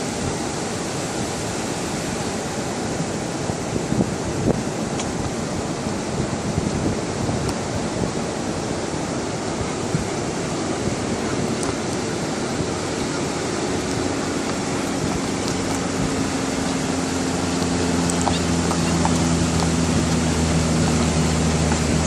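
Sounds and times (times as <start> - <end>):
ocean surf: 0.0 - 22.0
wind: 0.0 - 22.0
vehicle engine humming: 9.5 - 22.0.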